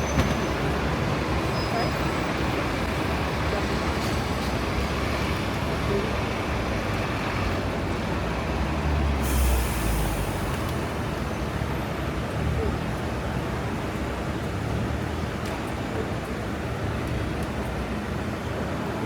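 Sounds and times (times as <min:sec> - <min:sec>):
busy street traffic: 0:00.0 - 0:19.0
heavy vehicle engine rumble: 0:00.0 - 0:19.0
air brake release hiss: 0:09.2 - 0:10.5.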